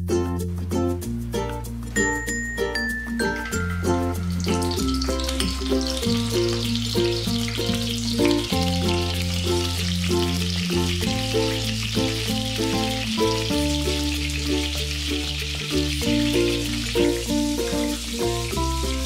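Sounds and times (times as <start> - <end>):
melodic background music: 0.0 - 19.0
vegetables sizzling in oil: 1.6 - 19.0.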